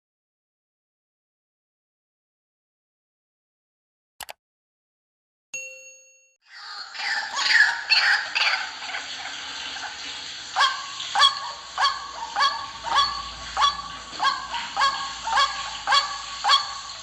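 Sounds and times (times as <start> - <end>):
waterhen calling: 6.5 - 17.0.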